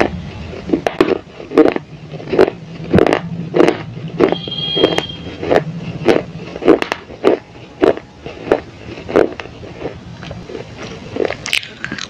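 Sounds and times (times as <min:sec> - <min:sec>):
loud crisp chewing crunches: 0:00.0 - 0:12.0.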